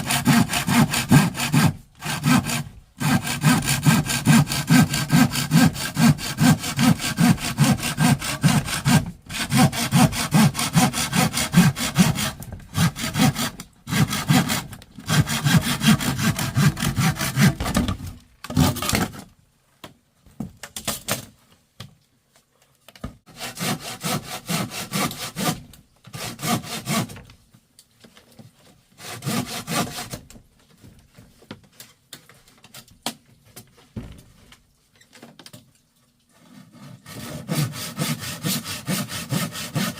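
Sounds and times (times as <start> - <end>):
hand saw cutting wood: 0.0 - 19.3, 23.3 - 27.3, 29.0 - 30.4, 36.3 - 39.9.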